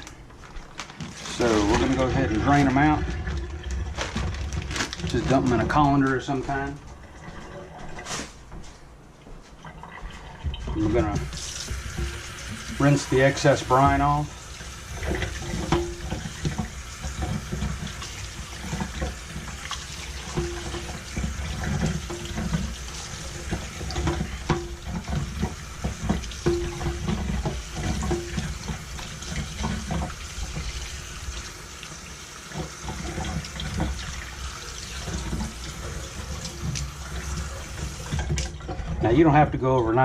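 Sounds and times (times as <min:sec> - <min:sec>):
tap water running: 0:00.0 - 0:40.0
colander knocks and clatter: 0:00.9 - 0:08.7, 0:14.9 - 0:31.0, 0:32.5 - 0:39.6.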